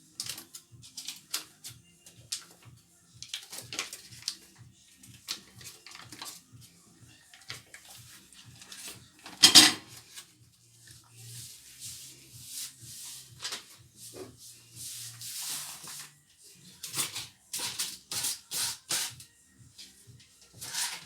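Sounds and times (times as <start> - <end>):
spoon scraping a pot: 20.6 - 21.0.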